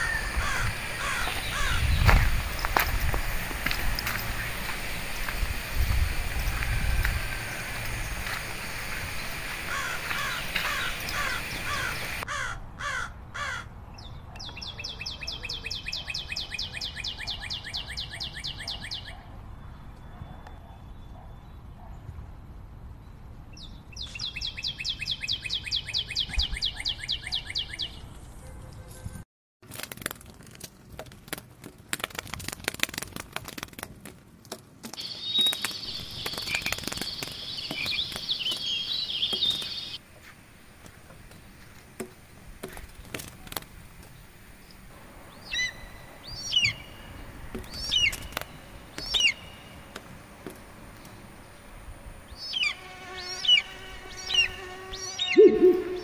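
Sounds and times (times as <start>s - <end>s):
birds calling: 0.0s - 22.0s, 34.9s - 40.0s, 41.2s - 56.0s
short swooping bird calls: 53.4s - 56.0s.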